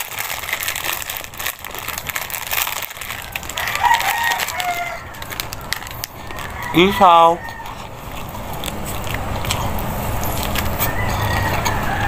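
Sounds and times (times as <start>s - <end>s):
crunching dry noodles: 0.0s - 12.0s
rooster crowing: 3.2s - 5.6s, 6.2s - 8.0s, 10.6s - 12.0s.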